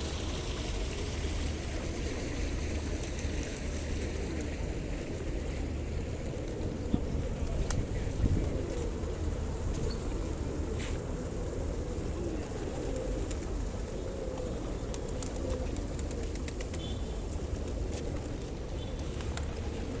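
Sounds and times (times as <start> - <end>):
pigeons cooing: 10.0 - 18.5.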